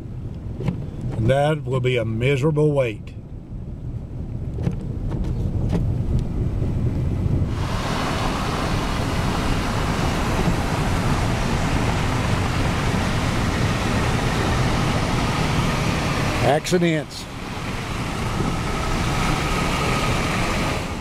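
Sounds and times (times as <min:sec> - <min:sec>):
engine and tyres rumbling: 0:00.0 - 0:21.0
loud rushing hiss: 0:07.5 - 0:21.0.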